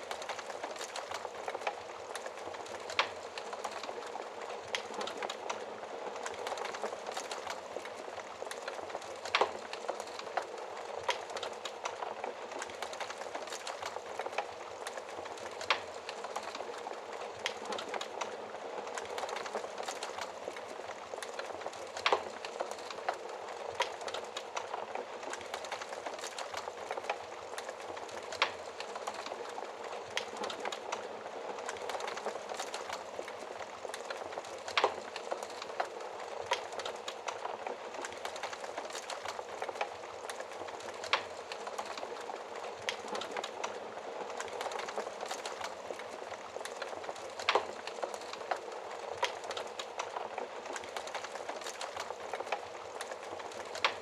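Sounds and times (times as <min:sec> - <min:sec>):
fire crackling: 0:00.0 - 0:54.0.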